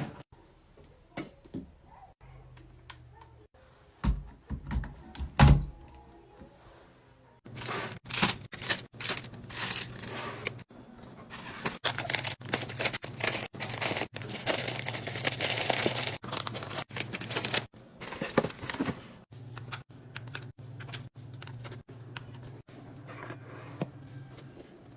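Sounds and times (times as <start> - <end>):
plastic packaging crinkling: 7.5 - 10.2, 11.6 - 18.8.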